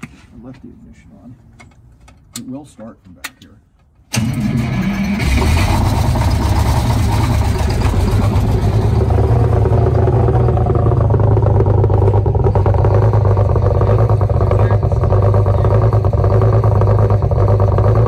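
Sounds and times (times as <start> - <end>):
diesel bus engine starting and idling: 4.1 - 18.0.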